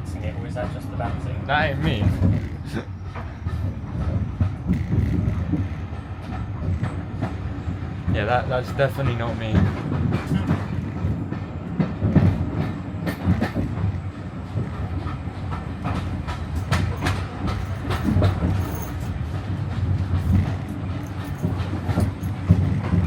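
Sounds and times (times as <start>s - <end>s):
train coach rumbling: 0.0s - 23.0s
clicks knocks and rattles: 20.1s - 23.0s.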